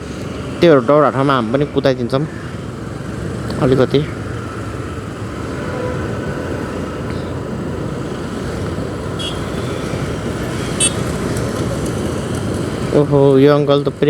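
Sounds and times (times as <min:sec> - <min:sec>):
motorcycle engine: 0:00.0 - 0:14.0
road noise: 0:00.0 - 0:14.0.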